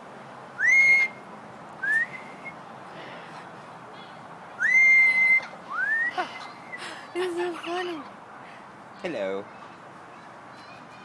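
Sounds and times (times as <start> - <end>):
parrot whistling: 0.6 - 1.2, 4.6 - 6.2.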